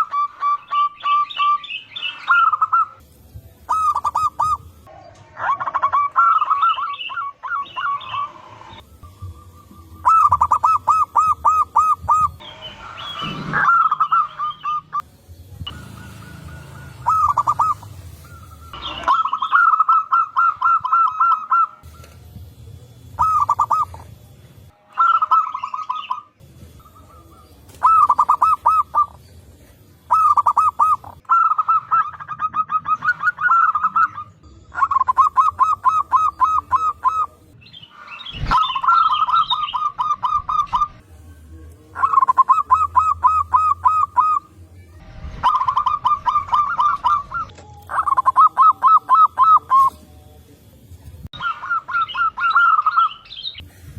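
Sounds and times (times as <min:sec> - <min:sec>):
high bird chirps: 0:00.0 - 0:03.1, 0:03.7 - 0:22.3, 0:23.1 - 0:24.1, 0:24.9 - 0:29.4, 0:30.0 - 0:41.0, 0:41.9 - 0:50.0, 0:51.3 - 0:53.7
doves cooing in rapid bursts: 0:03.7 - 0:04.8, 0:05.4 - 0:12.4, 0:15.7 - 0:22.1, 0:23.2 - 0:24.2, 0:26.8 - 0:29.2, 0:30.0 - 0:37.4, 0:41.9 - 0:44.6, 0:45.3 - 0:50.0.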